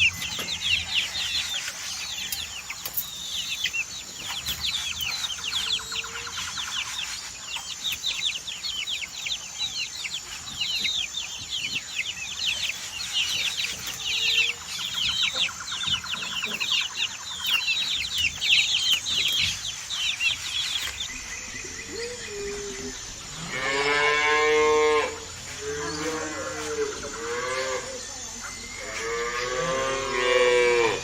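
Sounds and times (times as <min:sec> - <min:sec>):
birds chirping: 0:00.0 - 0:31.0
cow mooing: 0:23.4 - 0:27.9, 0:28.8 - 0:31.0.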